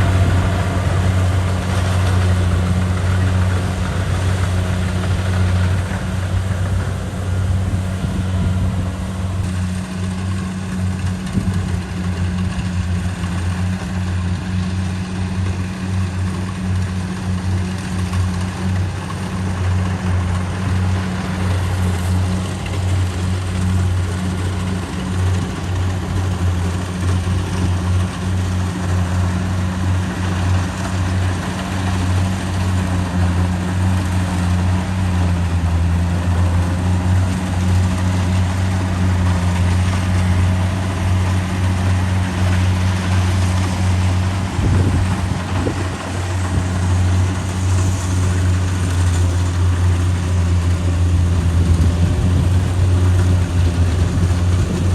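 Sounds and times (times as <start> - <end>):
combine harvester engine drone: 0.0 - 54.9
threshing machinery rushing: 0.0 - 54.9.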